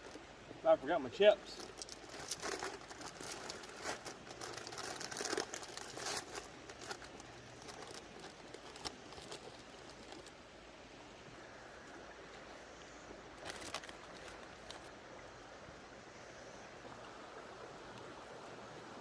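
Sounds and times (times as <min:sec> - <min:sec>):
faint steady hiss: 0:00.0 - 0:19.0
chip bag tearing and crinkling: 0:01.6 - 0:10.3, 0:13.4 - 0:14.9.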